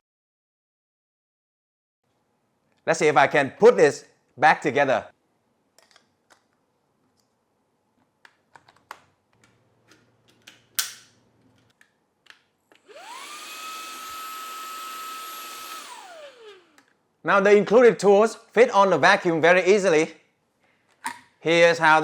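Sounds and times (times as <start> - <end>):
plastic clicks and snaps: 5.8 - 7.4, 8.0 - 12.8
handheld vacuum motor whine: 12.8 - 16.9.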